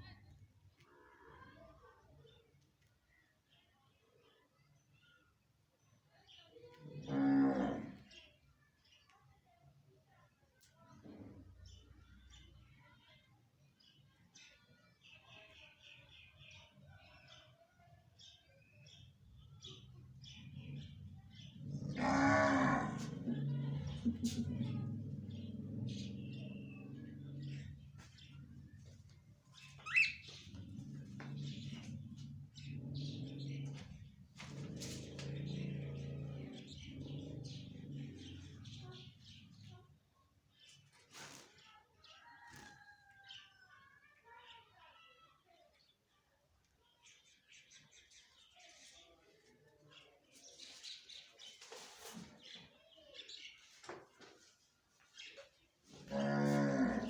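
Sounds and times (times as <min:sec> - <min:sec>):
parrot chirping: 0:29.8 - 0:30.3.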